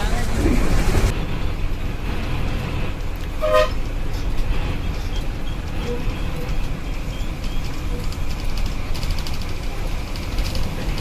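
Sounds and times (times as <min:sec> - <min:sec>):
bus engine and road rumble: 0:00.0 - 0:11.0
bus horn toot: 0:03.4 - 0:03.9.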